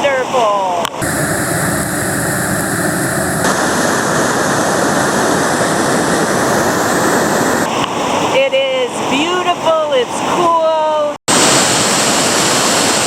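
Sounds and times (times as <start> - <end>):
river rapids rushing: 11.3 - 13.0.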